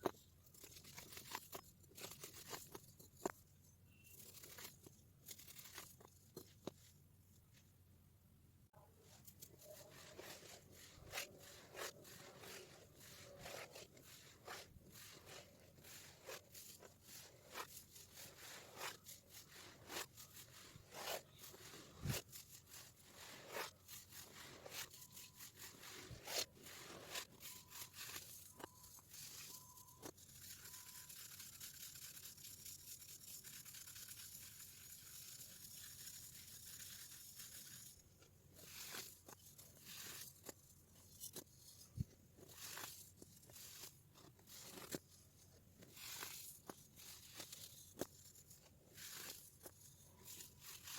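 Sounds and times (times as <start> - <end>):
powder being ground: 0.0 - 7.0, 9.0 - 50.9
baking soda crunching: 9.2 - 41.4, 42.4 - 45.0, 45.8 - 50.9.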